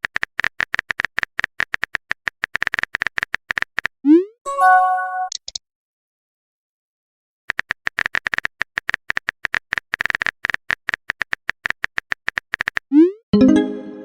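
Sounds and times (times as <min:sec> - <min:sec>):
message chime: 0:04.5 - 0:05.3, 0:13.4 - 0:14.0
phone keyboard typing clicks: 0:07.5 - 0:12.9.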